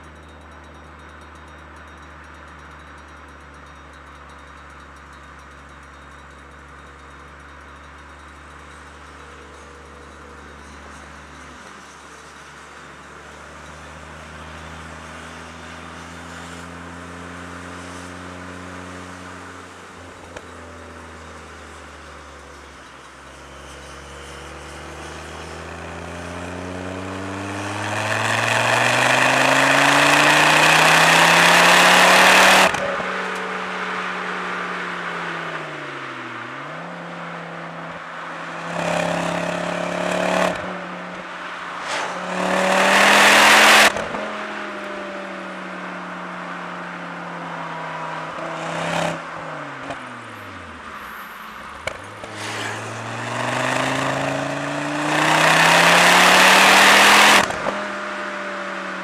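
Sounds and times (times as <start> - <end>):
turbocharged car engine revving: 26.9 - 34.6, 37.8 - 45.0, 51.7 - 57.9.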